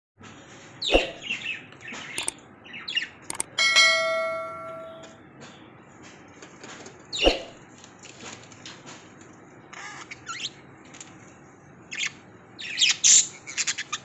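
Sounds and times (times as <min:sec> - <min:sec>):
sharp clicks: 0:03.3 - 0:03.6
bell-like metallic ring: 0:03.4 - 0:05.1.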